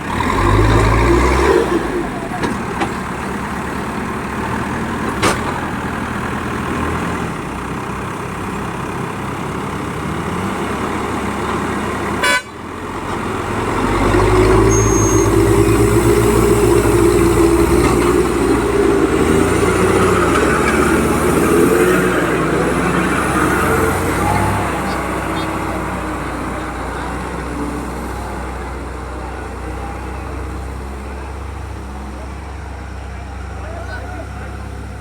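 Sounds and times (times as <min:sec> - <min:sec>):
heavy diesel engines running: 0:00.0 - 0:35.0
horn toot: 0:12.2 - 0:12.6.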